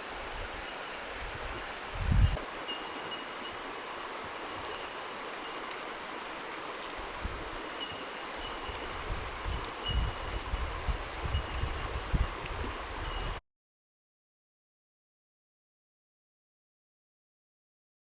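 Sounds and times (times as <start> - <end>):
flowing water rushing: 0.0 - 13.4.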